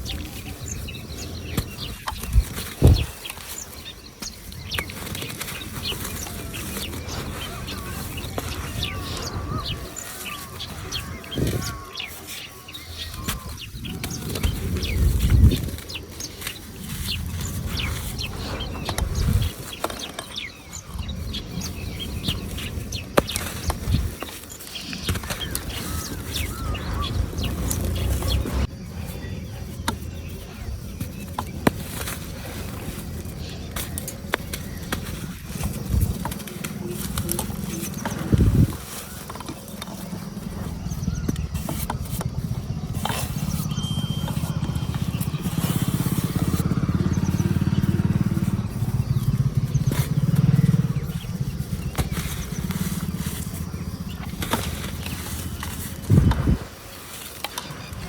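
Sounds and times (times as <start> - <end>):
birds chirping: 0.0 - 58.0
low rattling rumble: 17.3 - 19.7, 25.6 - 28.8.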